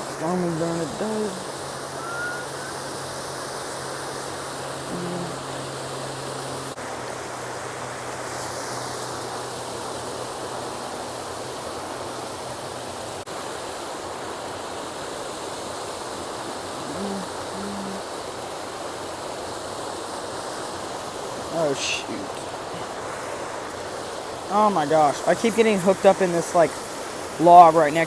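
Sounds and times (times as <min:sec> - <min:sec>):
water pouring through spillway: 0:20.4 - 0:28.0.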